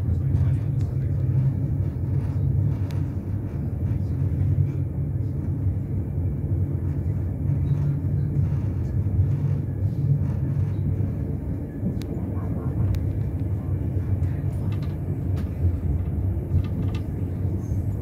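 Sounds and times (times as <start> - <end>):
train wheels running on rails: 0.0 - 18.0.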